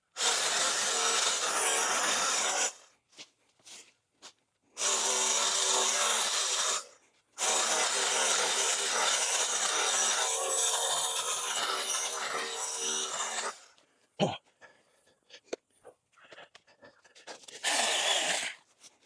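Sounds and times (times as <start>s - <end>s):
chainsaw cutting brush: 0.2s - 2.8s, 4.8s - 13.6s, 17.4s - 18.8s.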